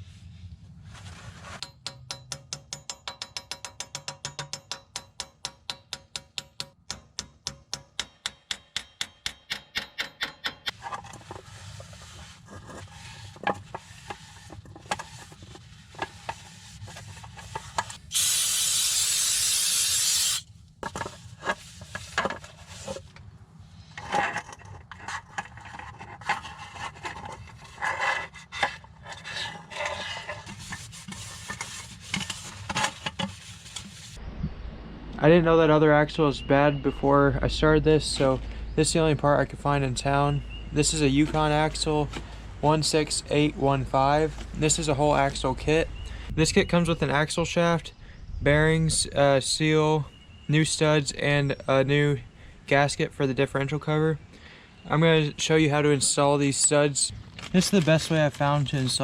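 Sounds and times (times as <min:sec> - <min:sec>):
loud hiss: 0:18.0 - 0:20.5.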